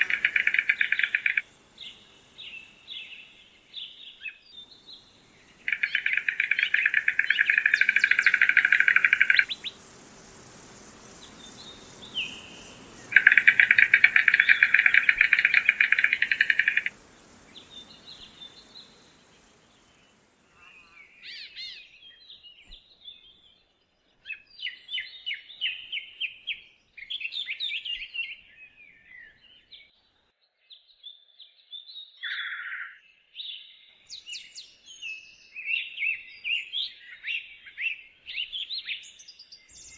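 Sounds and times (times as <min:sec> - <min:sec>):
short bird calls chirping: 0:00.0 - 0:20.2
stork bill clattering: 0:05.7 - 0:09.6.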